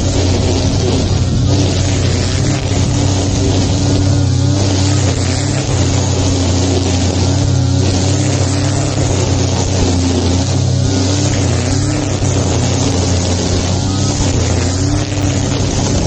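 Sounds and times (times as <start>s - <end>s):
lawn mower engine cutting grass: 0.0s - 16.0s.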